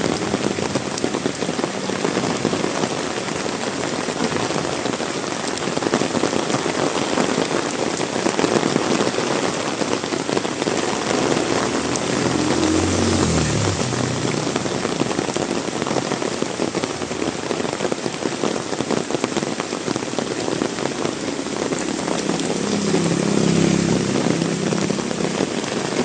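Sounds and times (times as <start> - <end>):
heavy rain falling: 0.0 - 26.0
low engine hum: 10.5 - 17.5, 20.0 - 26.0.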